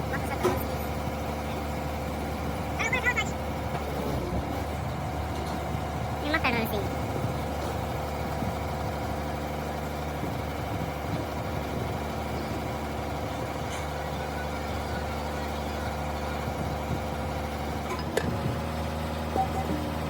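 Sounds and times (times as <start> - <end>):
large engine idling: 0.0 - 20.0.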